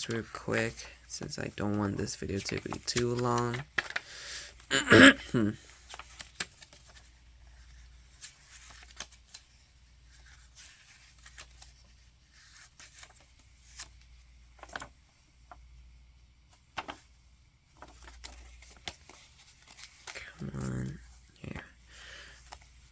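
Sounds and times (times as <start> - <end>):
paper pages flipping: 1.6 - 4.1, 5.7 - 15.7, 16.4 - 21.7.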